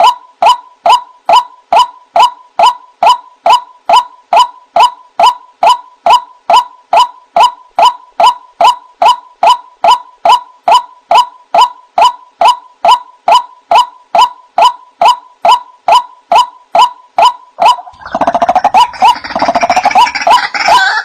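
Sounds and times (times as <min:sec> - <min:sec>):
waterhen calling: 0:17.6 - 0:21.0.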